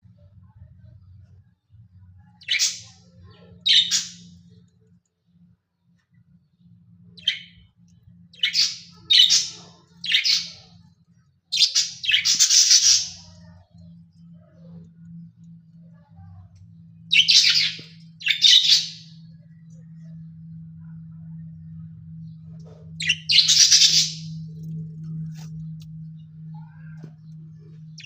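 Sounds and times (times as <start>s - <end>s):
faint low hum: 0.0s - 28.0s
budgerigars chirping and squawking: 2.4s - 2.9s, 3.6s - 4.2s, 8.4s - 10.6s, 11.6s - 13.3s, 17.1s - 19.1s, 23.0s - 24.3s.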